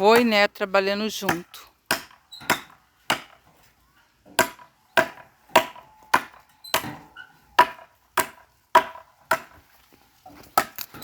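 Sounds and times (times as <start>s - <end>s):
metal tool striking wood: 1.2s - 3.4s, 4.3s - 9.6s, 10.6s - 11.0s.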